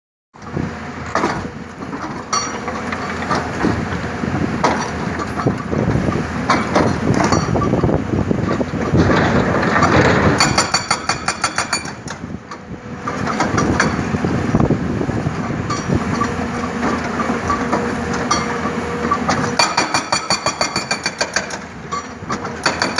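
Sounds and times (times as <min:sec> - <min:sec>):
excavator engine running: 0:00.4 - 0:22.9
hydraulic breaker hammering: 0:04.6 - 0:12.4, 0:15.4 - 0:22.9.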